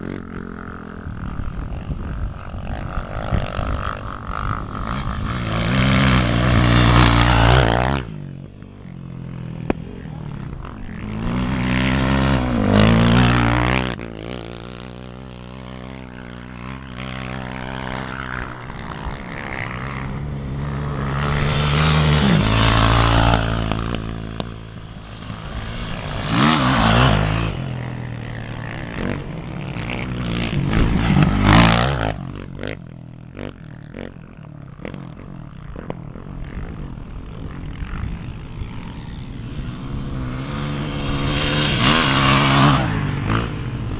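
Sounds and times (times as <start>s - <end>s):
racing engines revving: 9.3s - 32.8s.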